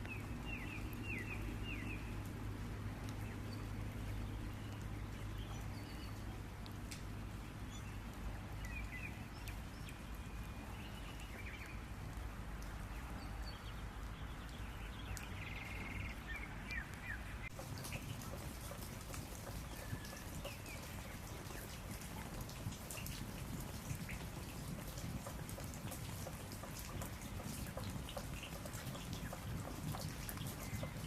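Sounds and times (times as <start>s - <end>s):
small birds chirping: 0.0s - 2.4s, 3.0s - 6.5s, 7.4s - 31.0s.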